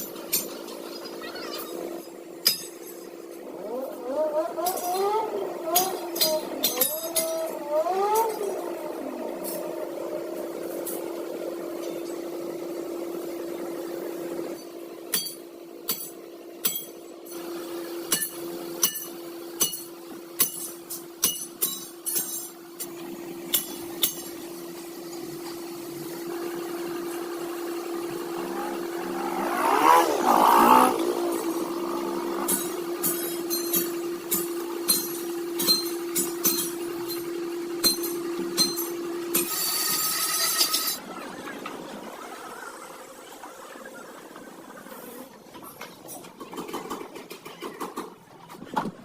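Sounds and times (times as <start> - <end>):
hammer striking metal: 2.4 - 3.1, 15.1 - 17.0, 18.1 - 22.6, 32.4 - 41.0.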